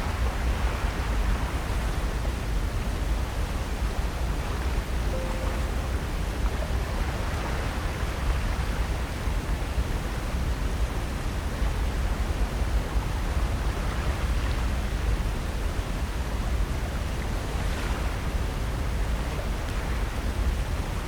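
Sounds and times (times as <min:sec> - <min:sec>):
wind along the shore: 0:00.0 - 0:21.0
ocean surf: 0:05.1 - 0:09.3.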